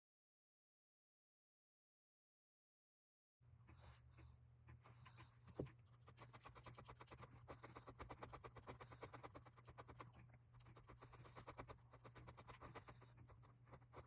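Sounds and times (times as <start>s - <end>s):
steady low hum: 3.4s - 14.0s
felting needle poking foam: 5.5s - 14.0s.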